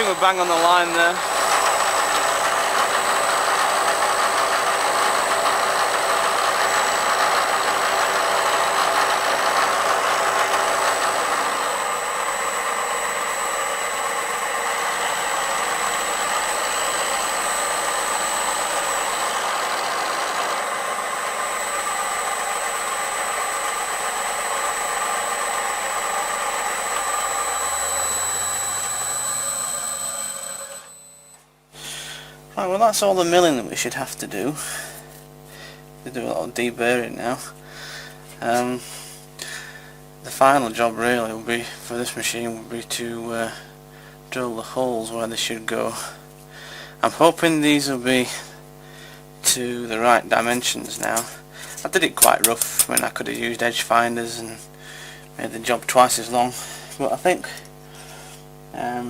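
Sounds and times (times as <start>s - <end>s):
milling machine running: 0.0s - 31.4s
constant high whine: 0.0s - 59.0s.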